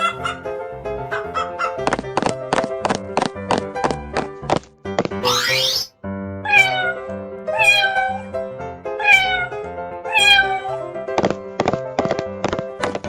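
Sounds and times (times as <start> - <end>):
light background music: 0.0 - 13.0
cat meowing: 6.4 - 8.4, 9.0 - 10.9.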